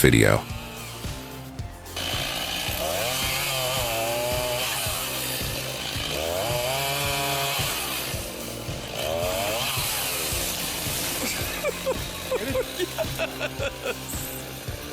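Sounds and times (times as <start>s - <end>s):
chainsaw engine revving: 0.0s - 14.9s.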